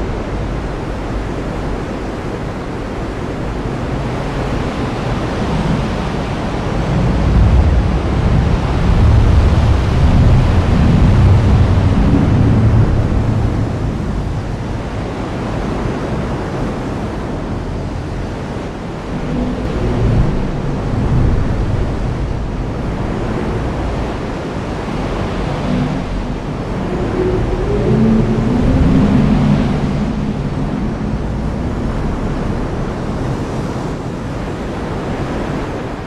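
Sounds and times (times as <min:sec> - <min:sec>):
low rumbles: 0:00.0 - 0:35.3
heavy rain pouring: 0:05.3 - 0:15.2, 0:18.7 - 0:33.4.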